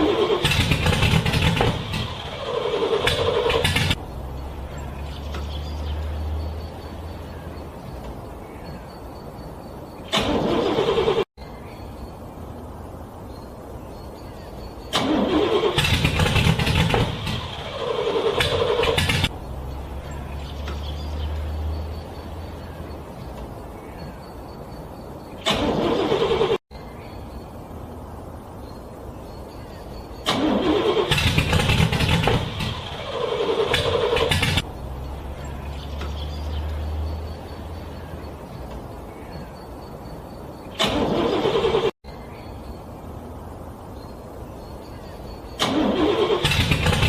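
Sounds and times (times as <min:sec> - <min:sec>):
car engine cranking: 0:00.0 - 0:08.2, 0:10.0 - 0:11.3, 0:14.8 - 0:23.5, 0:25.3 - 0:26.6, 0:30.2 - 0:38.9, 0:40.7 - 0:42.0, 0:45.6 - 0:47.0.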